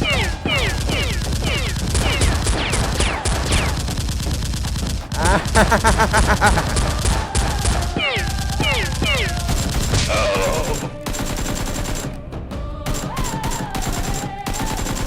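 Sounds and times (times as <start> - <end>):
gunshots with whizzing tone: 0.0 - 4.9
machine gun burst: 0.0 - 12.2, 12.9 - 15.0.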